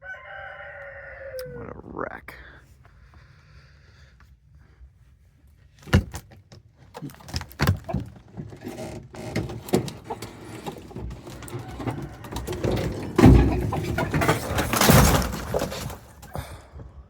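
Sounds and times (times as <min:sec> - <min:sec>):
hard objects knocking and clattering: 0:07.2 - 0:17.0.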